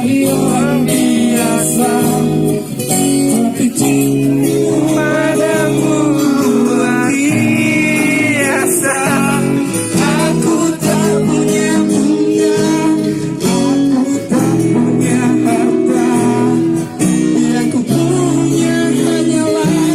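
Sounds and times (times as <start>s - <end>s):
person singing: 0.0s - 19.9s
strummed acoustic guitar: 0.0s - 19.9s.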